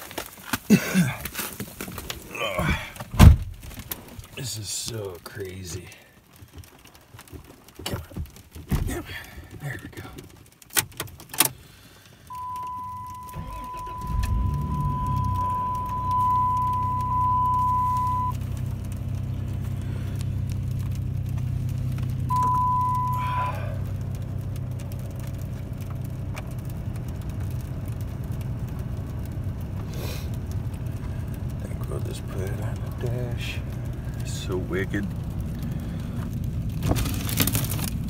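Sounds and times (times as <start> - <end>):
truck engine cranking and idling: 10.7 - 38.0
dashboard warning tone: 12.3 - 18.4, 22.3 - 23.7.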